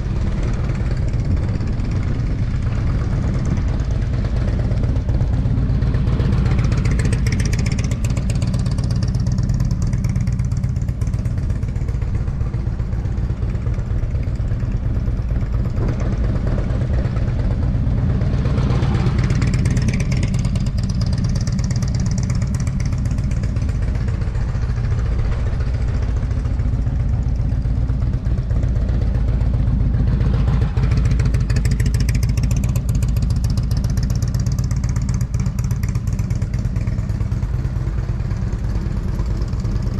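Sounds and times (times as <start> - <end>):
motorcycle engine passing: 14.4 - 39.9.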